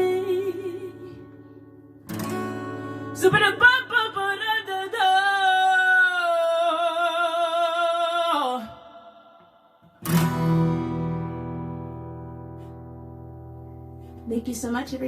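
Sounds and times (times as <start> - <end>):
woman singing: 0.0 - 1.7, 2.9 - 9.0
acoustic guitar chord: 0.0 - 5.0, 9.8 - 15.0.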